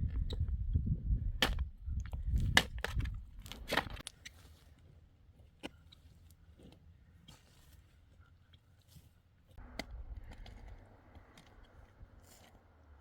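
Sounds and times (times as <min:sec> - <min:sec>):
low rumble: 0:09.6 - 0:13.0.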